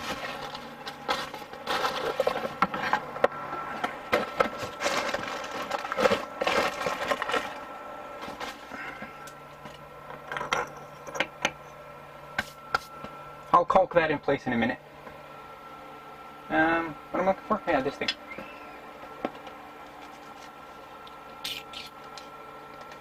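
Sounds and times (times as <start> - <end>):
packaging rustling: 0.0 - 3.2, 3.9 - 9.3.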